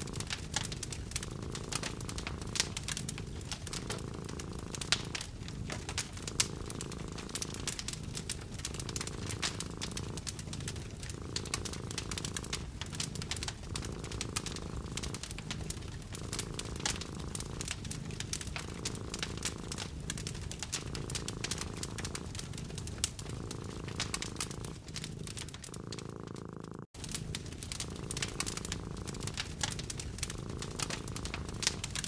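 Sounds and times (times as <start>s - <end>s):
cat purring: 0.0s - 32.0s
wood fire crackling: 0.0s - 32.0s.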